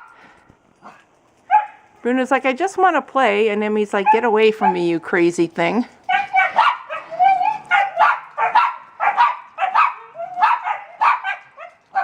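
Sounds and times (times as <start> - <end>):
dogs barking and yipping: 0.0 - 2.0, 4.0 - 4.9, 6.0 - 12.0.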